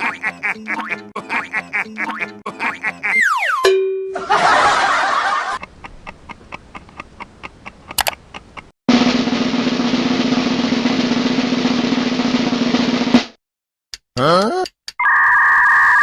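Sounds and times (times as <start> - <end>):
snare drum roll: 8.9 - 13.4.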